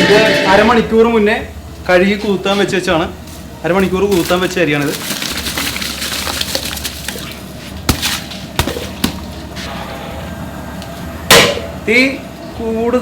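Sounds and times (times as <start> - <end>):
rice pouring into boiling water: 3.8 - 8.9.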